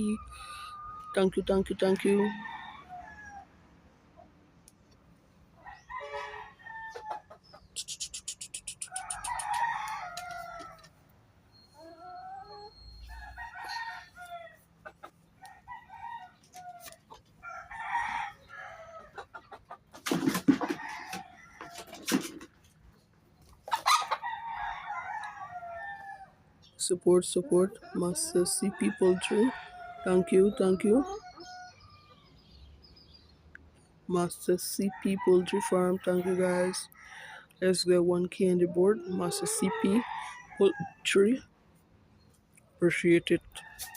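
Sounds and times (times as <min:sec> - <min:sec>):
chickens clucking and crowing: 0:00.0 - 0:43.9.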